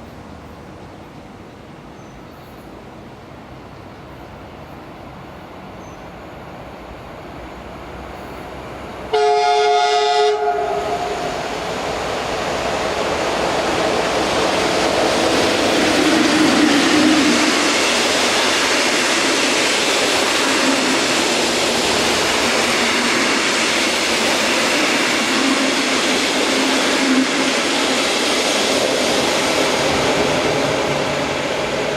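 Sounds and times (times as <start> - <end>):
train running noise: 0.0 - 31.9
train horn: 9.1 - 11.4.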